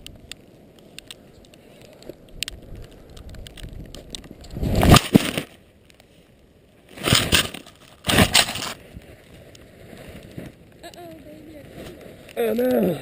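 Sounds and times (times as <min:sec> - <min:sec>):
snow crunching and scraping: 0:04.3 - 0:13.0.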